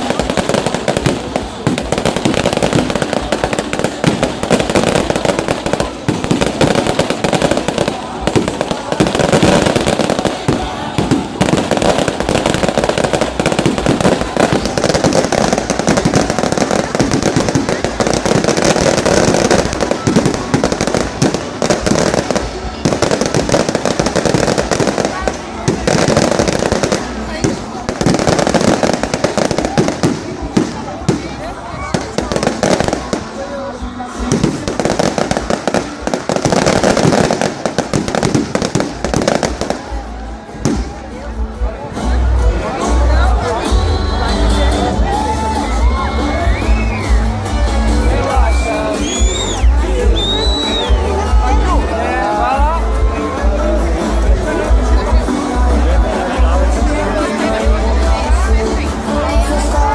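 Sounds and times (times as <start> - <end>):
bonfire crackling and popping: 0.0 - 33.5, 34.2 - 41.1.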